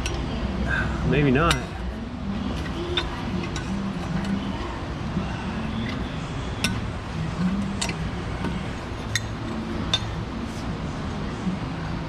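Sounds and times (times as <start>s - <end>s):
steady low hum: 0.0s - 12.0s
metal tools clinking: 1.4s - 4.8s, 5.6s - 10.6s.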